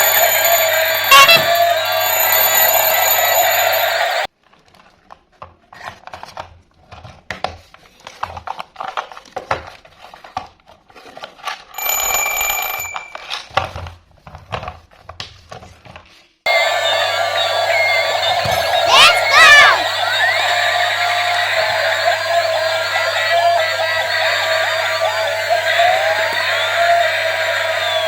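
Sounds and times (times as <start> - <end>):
high electronic alarm beep: 0.0 - 3.9.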